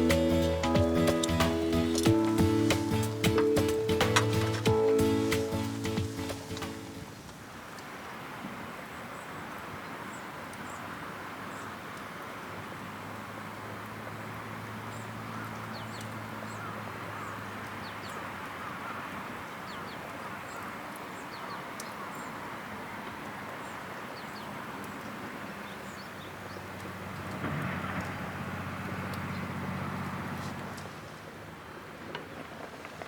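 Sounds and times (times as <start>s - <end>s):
high bird chirps: 0.0s - 6.6s.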